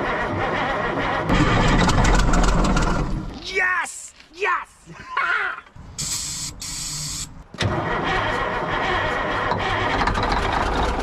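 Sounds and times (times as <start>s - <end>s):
hiss with low hum: 5.9s - 7.3s.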